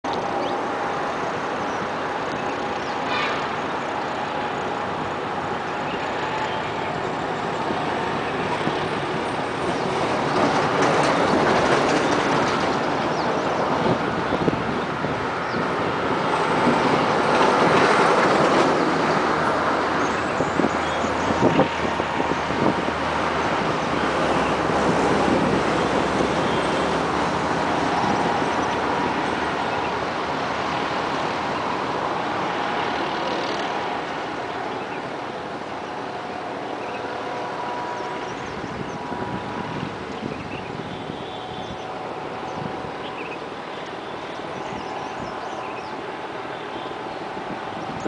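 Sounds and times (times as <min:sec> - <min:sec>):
train wheels clattering on rails: 0:07.2 - 0:14.2, 0:15.6 - 0:29.9.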